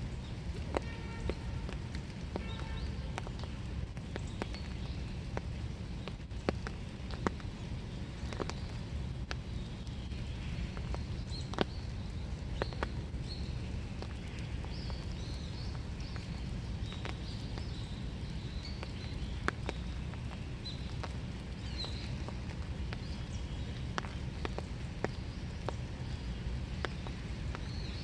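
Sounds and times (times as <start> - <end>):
low background hum: 0.0 - 28.0
rain dripping on leaves: 0.0 - 28.0.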